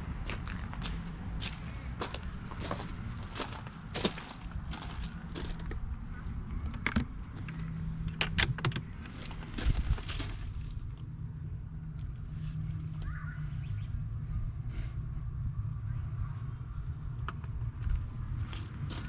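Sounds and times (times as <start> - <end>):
steady low rumble: 0.0 - 19.0
footsteps knocking and crunching: 0.2 - 5.9, 6.6 - 11.0, 17.4 - 19.0.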